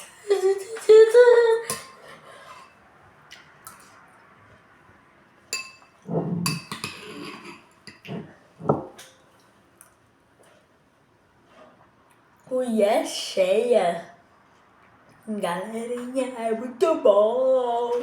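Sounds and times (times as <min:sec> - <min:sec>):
spoon clinking against bowl: 0:05.5 - 0:08.1.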